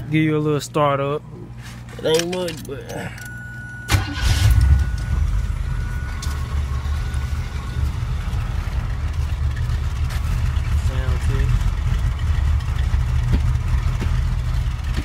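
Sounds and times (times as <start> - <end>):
steady high tone: 2.1 - 12.0
car engine starting and idling: 2.1 - 15.0.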